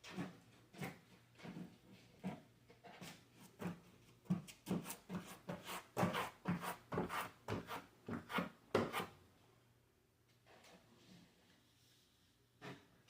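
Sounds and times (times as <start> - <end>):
hand tool rubbing on drywall: 4.7 - 9.2.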